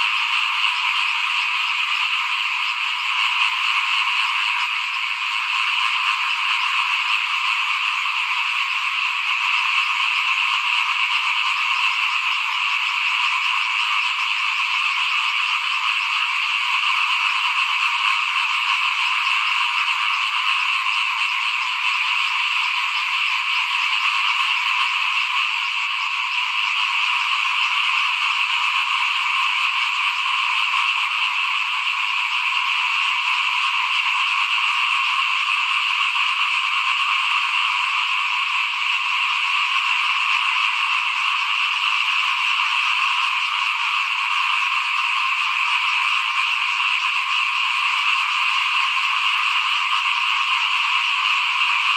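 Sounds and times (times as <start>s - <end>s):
chorus of frogs calling: 0.0s - 51.9s.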